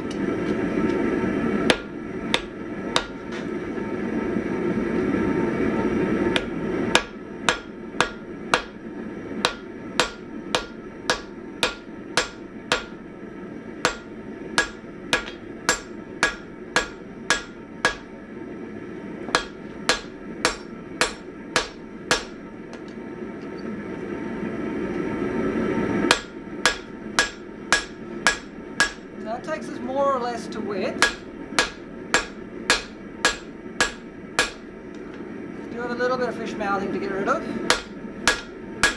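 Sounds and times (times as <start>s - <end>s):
hammer striking steel on anvil: 1.7s - 3.4s, 6.4s - 13.0s, 13.8s - 18.2s, 19.3s - 23.0s, 26.1s - 29.2s, 31.0s - 35.1s, 37.6s - 38.9s.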